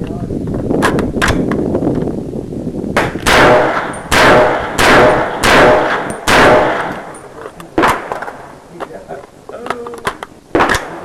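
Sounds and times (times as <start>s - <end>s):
sharp quieter gunshot: 3.0s - 7.1s
gunshots with long echo: 3.0s - 7.2s, 7.8s - 8.5s.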